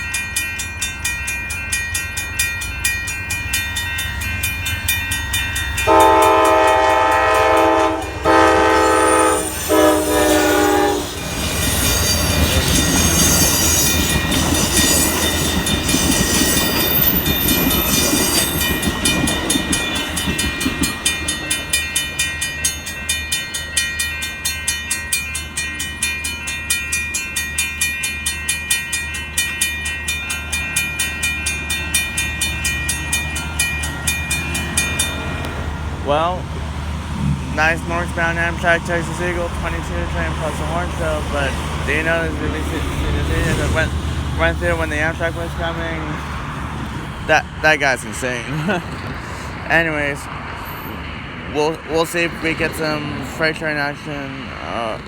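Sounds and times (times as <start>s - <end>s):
crossing warning bell ringing: 0.0s - 36.6s, 37.6s - 49.0s, 49.7s - 55.0s
train wheels clattering on rails: 0.0s - 55.0s
train horn blasts: 5.8s - 11.3s.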